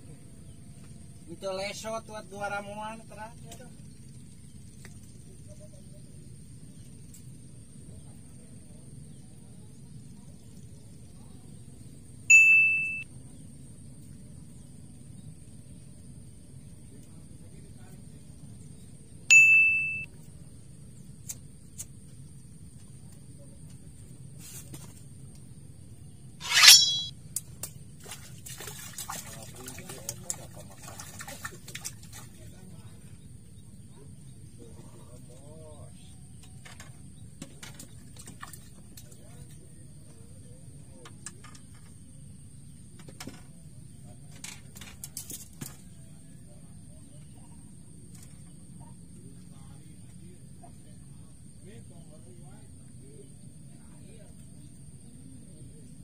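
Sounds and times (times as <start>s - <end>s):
electronic ding: 12.3s - 13.0s, 19.3s - 20.1s, 26.4s - 27.1s
thin steady high tone: 12.3s - 13.1s, 19.3s - 20.1s, 26.4s - 27.1s
fishing rod swish: 26.4s - 27.1s
clicks and rustles of handling fish: 44.3s - 45.9s.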